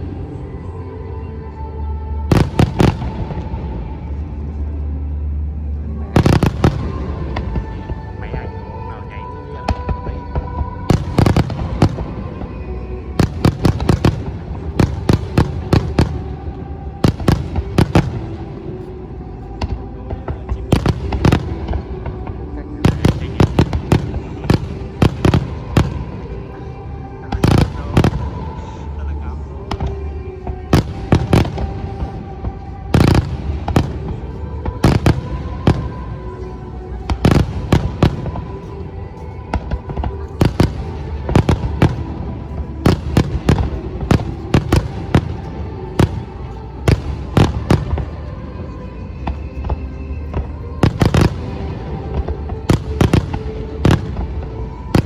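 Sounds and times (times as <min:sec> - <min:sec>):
music playing: 0:00.0 - 0:55.0
fireworks bursting: 0:06.1 - 0:08.4, 0:09.6 - 0:12.6, 0:13.2 - 0:18.6, 0:19.6 - 0:26.4, 0:27.3 - 0:28.7, 0:30.7 - 0:36.3, 0:39.4 - 0:55.0
fireworks bangs: 0:19.6 - 0:26.3.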